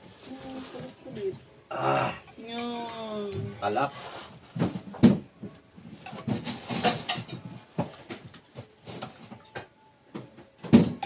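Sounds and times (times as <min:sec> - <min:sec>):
dishes and utensils clinking: 0:05.9 - 0:09.7.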